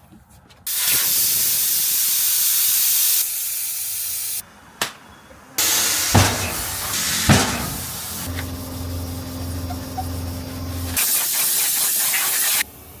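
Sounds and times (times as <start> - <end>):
pressurised spray hissing: 0.7 - 4.4, 5.6 - 12.7
sharp knocks: 6.1 - 8.0
low motor hum: 6.3 - 11.0.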